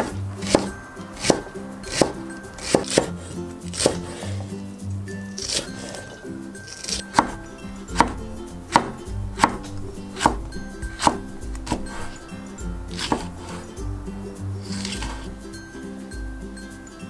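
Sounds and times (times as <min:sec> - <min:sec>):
knife chopping on wooden board: 0:00.0 - 0:04.4, 0:05.4 - 0:06.0, 0:06.7 - 0:12.2, 0:12.9 - 0:13.7, 0:14.6 - 0:15.4.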